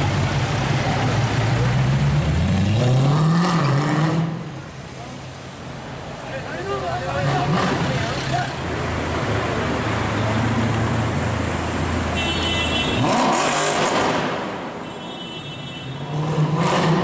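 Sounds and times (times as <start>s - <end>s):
car engine drone: 0.0s - 12.2s.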